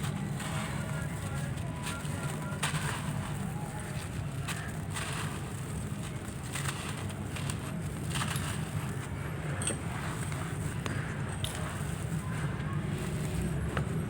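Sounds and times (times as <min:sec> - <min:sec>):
gritty lumps crumbling: 0:00.0 - 0:09.2.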